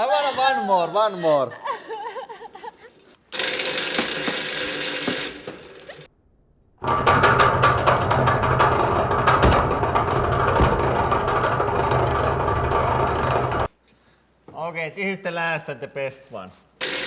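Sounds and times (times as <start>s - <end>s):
angle grinder spinning: 1.6s - 6.1s, 6.8s - 13.7s.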